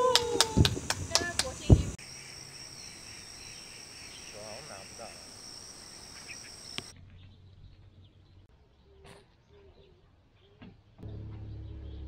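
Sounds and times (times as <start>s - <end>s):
insects chirring: 0.0s - 6.9s.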